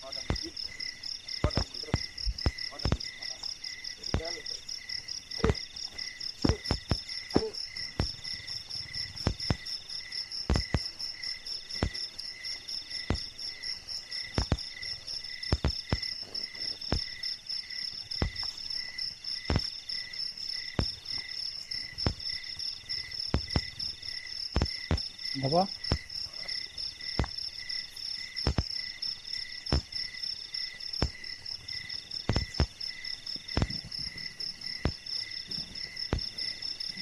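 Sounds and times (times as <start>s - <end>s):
crickets trilling: 0.0s - 37.0s
sharp knocks: 1.4s - 3.2s, 6.4s - 9.7s, 10.4s - 10.9s, 14.4s - 14.7s, 15.5s - 16.2s, 18.2s - 18.5s, 19.5s - 19.7s, 23.3s - 23.8s, 28.4s - 28.7s, 32.3s - 32.8s, 33.5s - 34.0s.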